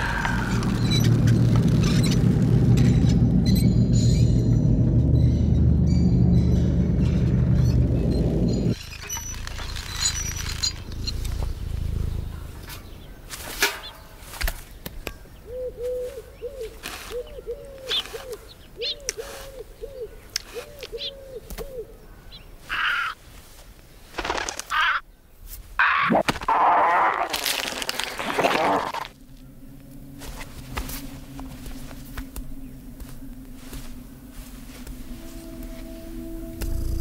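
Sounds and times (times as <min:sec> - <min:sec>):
loud rough rustling: 0:07.1 - 0:13.6.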